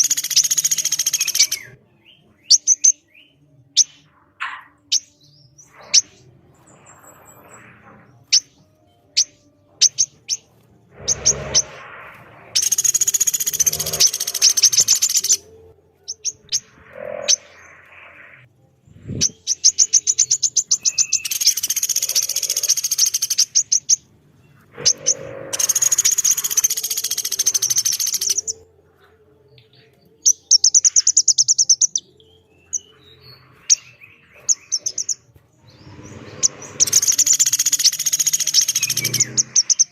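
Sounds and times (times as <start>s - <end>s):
sharp bird chips: 0.0s - 1.8s, 3.8s - 11.8s, 12.5s - 15.4s, 19.1s - 24.1s, 24.8s - 28.6s, 33.6s - 39.9s
harsh repeated bird calls: 0.0s - 28.7s, 30.2s - 39.9s.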